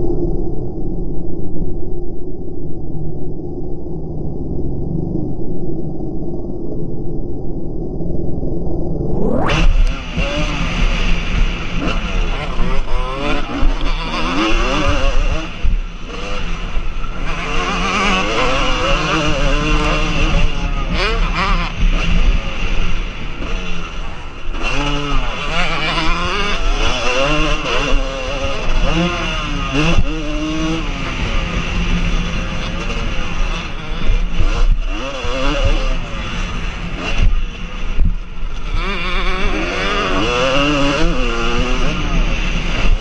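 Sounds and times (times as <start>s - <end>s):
motorcycles revving: 9.1s - 43.0s.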